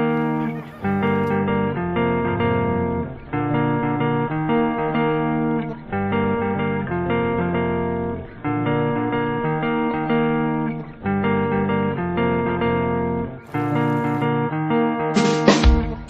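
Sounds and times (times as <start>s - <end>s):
plucked and strummed guitar: 0.0s - 16.0s.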